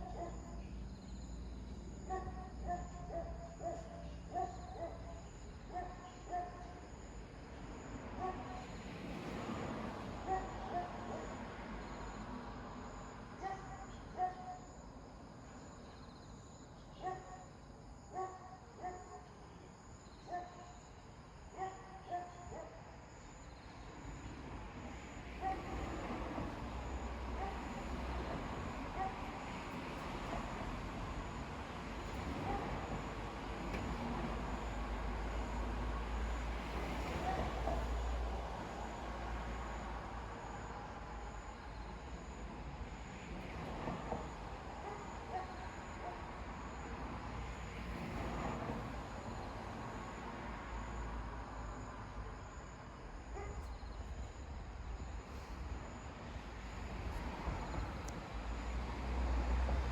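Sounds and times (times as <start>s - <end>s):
insects chirping: 0.0s - 59.9s
distant traffic rumble: 23.8s - 59.9s.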